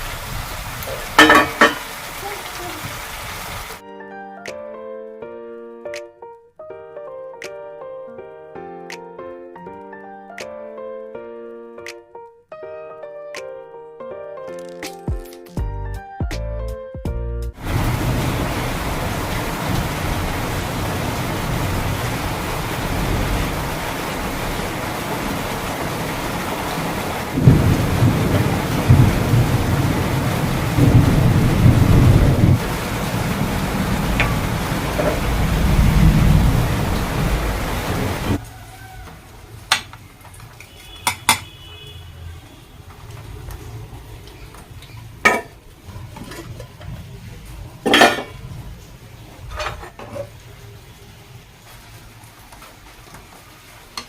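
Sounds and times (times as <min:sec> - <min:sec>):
steady rain: 0:00.0 - 0:03.8, 0:17.6 - 0:54.0
dishes and utensils clinking: 0:01.2 - 0:01.9, 0:40.6 - 0:41.5, 0:45.2 - 0:46.9, 0:47.9 - 0:48.4, 0:49.5 - 0:50.3
dishes clattering: 0:01.2 - 0:01.9, 0:41.0 - 0:41.5, 0:45.2 - 0:46.9, 0:47.8 - 0:48.4, 0:49.5 - 0:50.3
thunder rumbling: 0:17.6 - 0:38.4.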